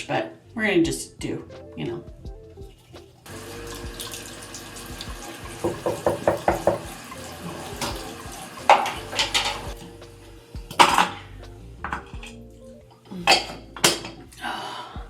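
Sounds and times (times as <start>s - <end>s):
water splashing: 3.0s - 9.8s
tap running into sink: 3.3s - 9.8s
knocks against sink: 5.6s - 7.0s.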